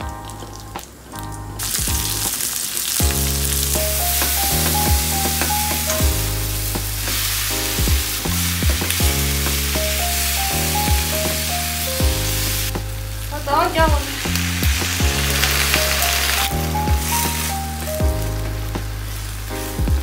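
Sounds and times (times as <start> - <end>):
background music with a beat: 0.0 - 2.4, 3.0 - 13.2, 13.8 - 20.0
potatoes sizzling in a wok: 1.6 - 19.5.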